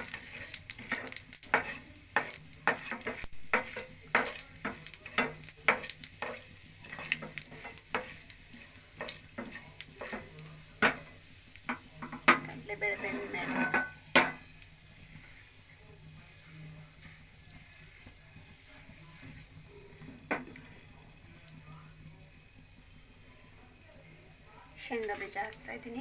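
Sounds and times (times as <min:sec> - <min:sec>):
seeds popping and spitting: 0:00.0 - 0:06.2
spatula scraping a pan: 0:00.0 - 0:15.8, 0:16.4 - 0:20.9
oil sizzling in a pan: 0:00.0 - 0:26.0.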